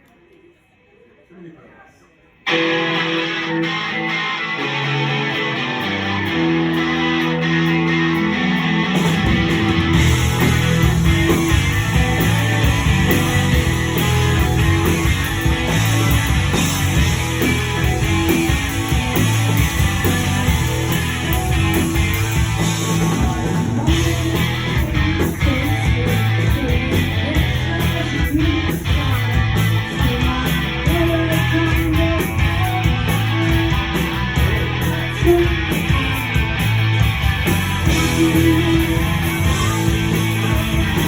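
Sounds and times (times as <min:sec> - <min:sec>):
rock band playing live: 0:02.4 - 0:41.0.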